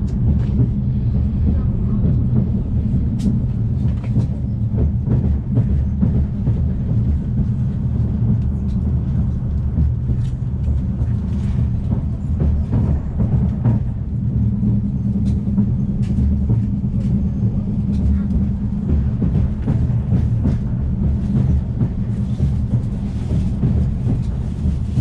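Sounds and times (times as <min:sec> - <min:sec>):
train rumble inside carriage: 0:00.0 - 0:25.0.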